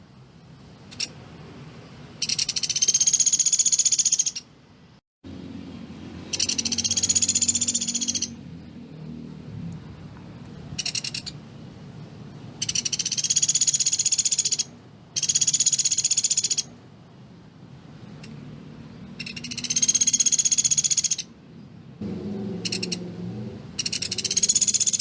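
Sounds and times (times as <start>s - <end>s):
woodpecker rattling call: 0.9s - 1.2s, 2.2s - 4.5s, 6.3s - 8.4s, 10.8s - 11.4s, 12.6s - 16.7s, 19.2s - 21.3s, 22.6s - 23.0s, 23.8s - 25.0s.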